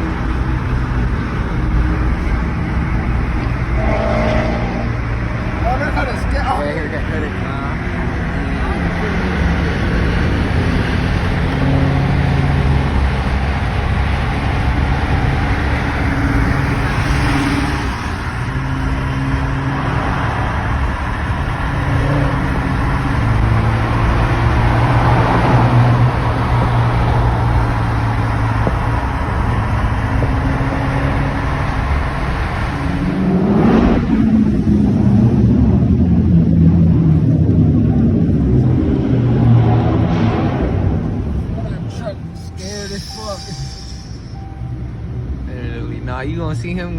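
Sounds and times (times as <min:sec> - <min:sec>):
car engine running: 0:00.0 - 0:46.9
road noise: 0:00.0 - 0:46.9
engine revving sharply: 0:03.4 - 0:13.7.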